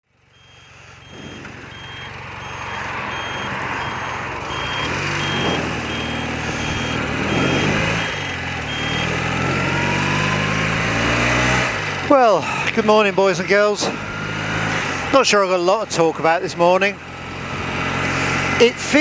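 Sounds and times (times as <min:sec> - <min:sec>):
motorcycle engine idling: 0:00.1 - 0:09.1
electronic beeping: 0:00.3 - 0:10.4.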